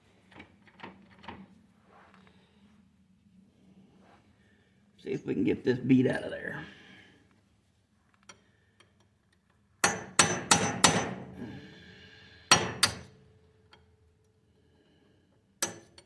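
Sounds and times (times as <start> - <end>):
hammer striking steel punch: 9.8 - 11.2.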